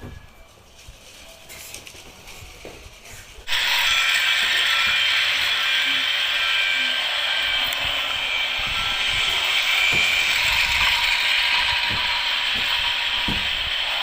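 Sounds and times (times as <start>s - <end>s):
toy train whirring and clattering: 0.4s - 14.0s
low knocks: 9.8s - 13.7s.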